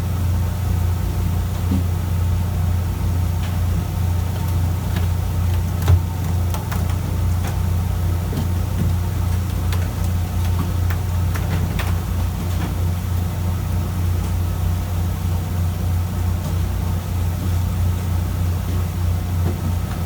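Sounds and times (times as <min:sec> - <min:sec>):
faint clicks and knocks: 0:04.3 - 0:12.8.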